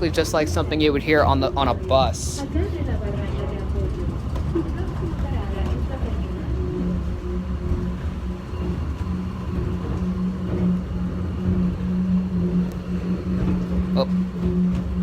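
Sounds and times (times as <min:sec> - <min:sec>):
train rumble: 0:00.0 - 0:15.0
train running low hum: 0:00.0 - 0:15.0.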